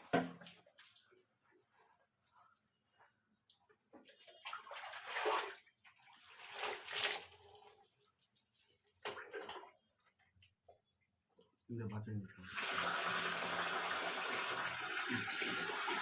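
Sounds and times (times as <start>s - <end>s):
water splashing over hair: 4.4s - 7.4s.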